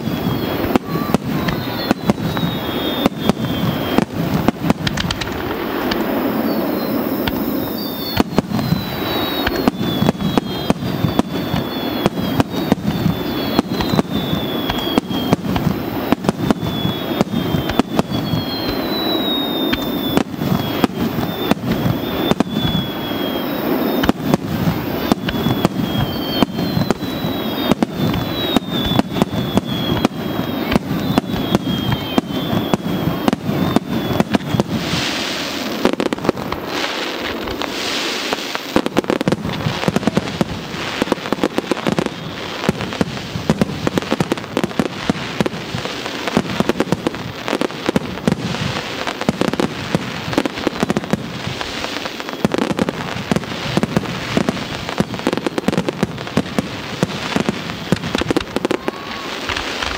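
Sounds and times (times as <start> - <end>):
faint falling whistle: 0.0 - 4.2, 6.3 - 15.4, 16.0 - 24.3, 25.0 - 35.1, 52.1 - 52.7, 58.2 - 59.9
fireworks bursting and popping: 0.0 - 59.9.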